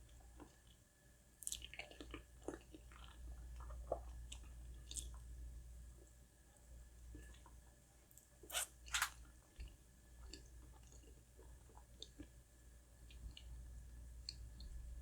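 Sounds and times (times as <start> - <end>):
person chewing food: 1.4 - 5.3, 8.5 - 12.4.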